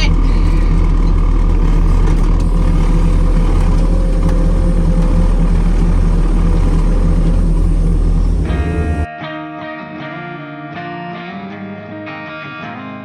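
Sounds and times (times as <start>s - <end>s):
tractor engine running: 0.0s - 9.1s.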